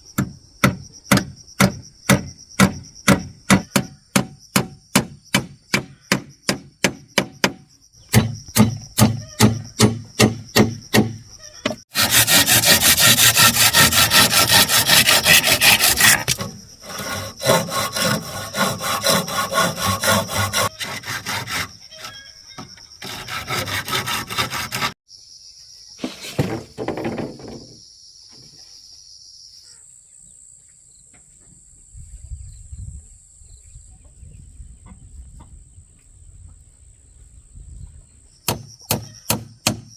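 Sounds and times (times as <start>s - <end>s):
sawing through wood: 11.8s - 22.2s, 23.0s - 25.0s
quick strokes on wood: 12.0s - 21.7s.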